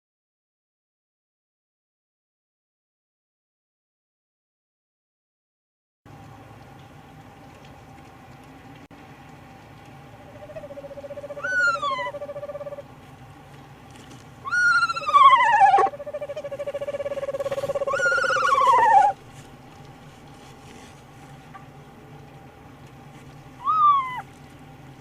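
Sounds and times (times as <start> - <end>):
owl squealing calls: 10.2 - 12.9, 14.4 - 19.2, 23.6 - 24.3
owl wavering trill: 10.2 - 12.9, 14.4 - 19.2, 23.6 - 24.3.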